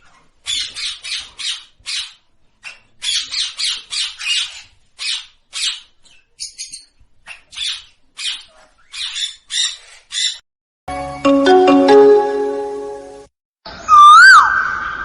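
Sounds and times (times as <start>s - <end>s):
parrot squawking: 0.4s - 10.4s.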